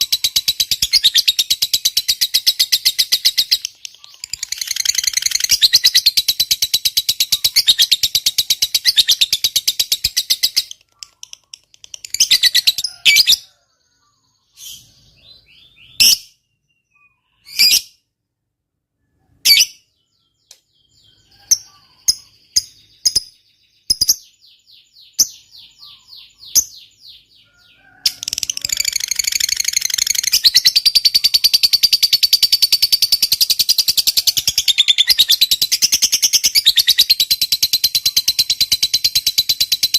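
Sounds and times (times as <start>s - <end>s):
bird chirps and rattles: 0.0s - 12.8s, 28.0s - 39.9s
lovebird chattering trill: 0.0s - 13.5s, 28.1s - 39.9s.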